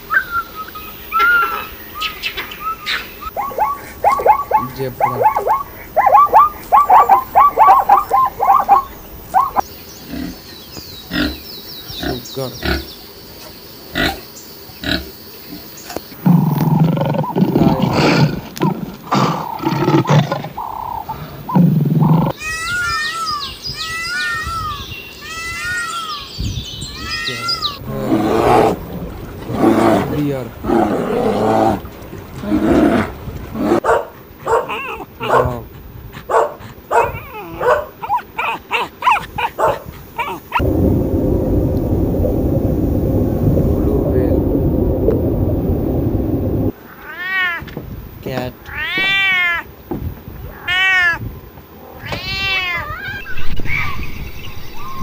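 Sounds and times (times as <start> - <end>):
high falling chirps: 0.0 - 13.2, 19.0 - 29.5, 52.8 - 55.0
pig grunting and squealing: 3.3 - 10.4, 16.2 - 23.3, 27.0 - 28.8, 29.4 - 33.9, 34.5 - 35.7, 37.0 - 40.6
dog barking: 3.4 - 9.6, 33.7 - 35.6, 36.3 - 40.6
low rumbling noise: 27.7 - 33.8, 40.6 - 46.8.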